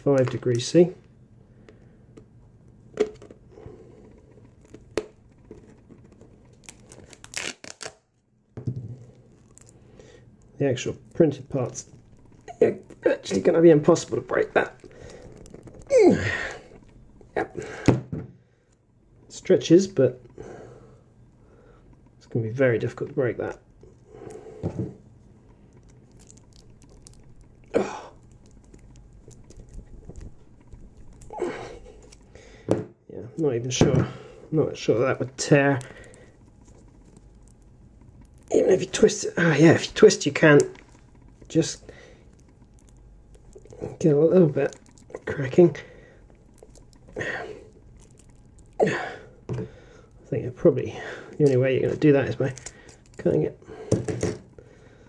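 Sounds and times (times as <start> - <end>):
plastic part crackling: 4.1 - 8.0, 11.0 - 17.3, 25.4 - 32.4, 35.0 - 48.8, 51.3 - 54.5
plastic part ticking and rustling: 25.7 - 31.4.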